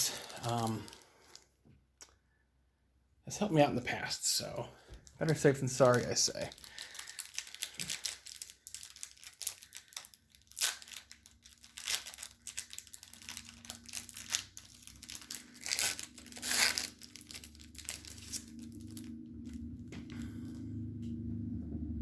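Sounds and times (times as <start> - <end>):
wrapper tearing and crinkling: 0.0 - 1.4, 5.0 - 19.6.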